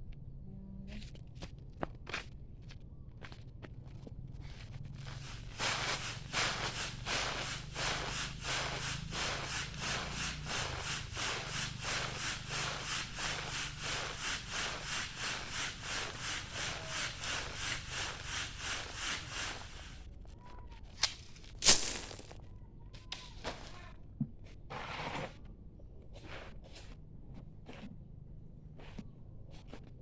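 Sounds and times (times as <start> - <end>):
hand tool rasping strokes: 5.0 - 19.8.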